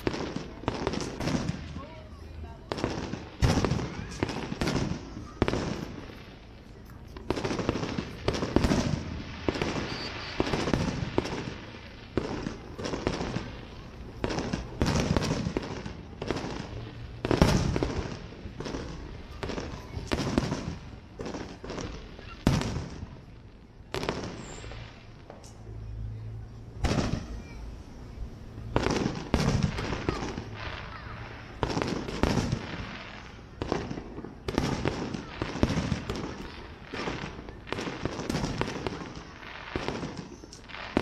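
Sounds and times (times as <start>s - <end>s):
firework shells bursting: 2.7s - 13.5s.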